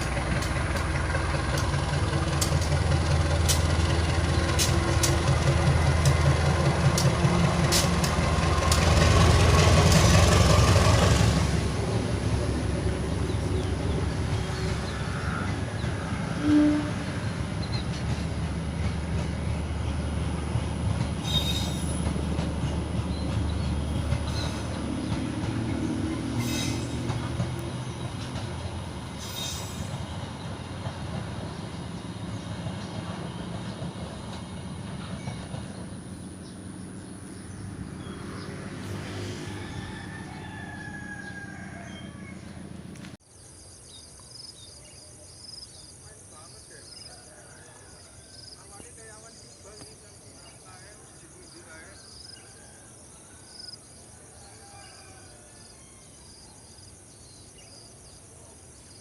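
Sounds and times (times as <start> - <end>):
train rumbling on rails: 0.0 - 43.4
high wheel squeals: 21.2 - 22.1.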